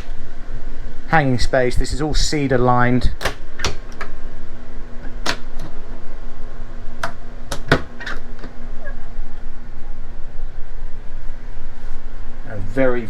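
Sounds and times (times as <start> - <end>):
steady low hum: 0.0 - 13.0
sharp clicks and knocks: 3.2 - 4.2, 5.0 - 5.8, 7.0 - 8.6.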